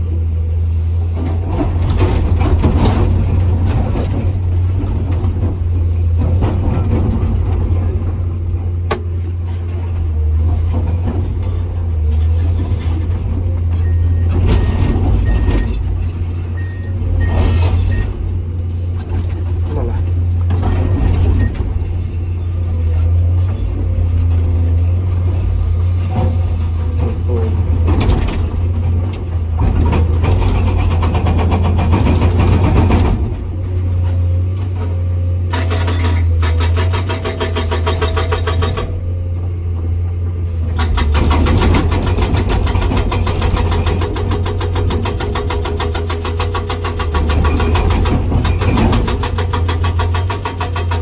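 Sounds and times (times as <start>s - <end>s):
excavator diesel engine droning: 0.0s - 51.0s
rough mechanical noise: 0.0s - 51.0s
hydraulic breaker hammering rock: 25.5s - 33.6s, 35.5s - 39.2s, 40.6s - 51.0s.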